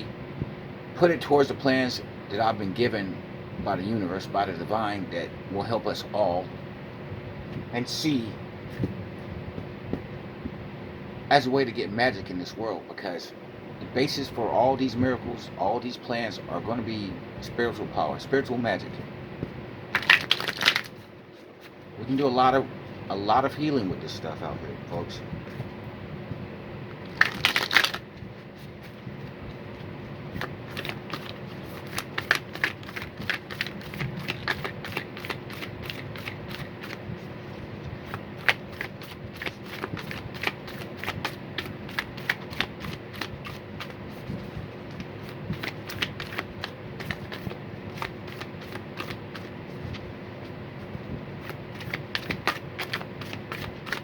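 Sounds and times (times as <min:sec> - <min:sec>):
cards being shuffled: 0:19.9 - 0:22.2, 0:27.0 - 0:50.6, 0:51.4 - 0:54.0.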